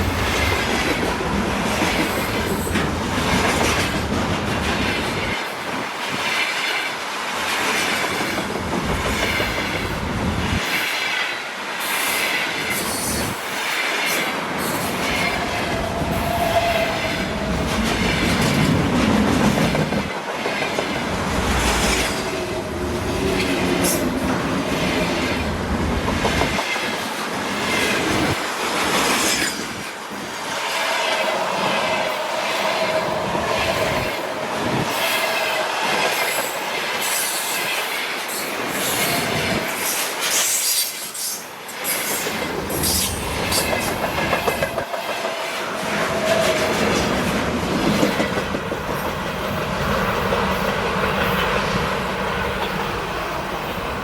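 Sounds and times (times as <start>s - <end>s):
wheels squealing on rail: 9.1s - 18.8s, 30.6s - 47.2s
train wheels clattering over rail joints: 33.6s - 50.0s.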